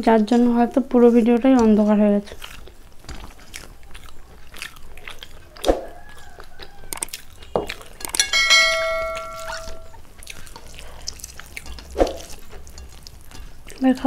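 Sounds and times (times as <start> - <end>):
metal tableware ringing: 8.0 - 10.0.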